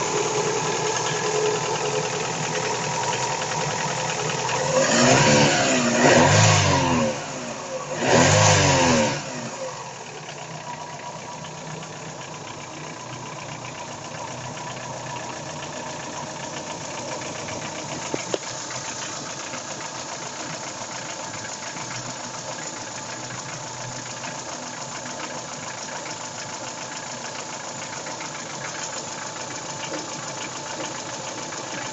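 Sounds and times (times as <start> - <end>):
car engine revving: 0.0 - 10.1
engine idling with a knock: 10.2 - 31.9.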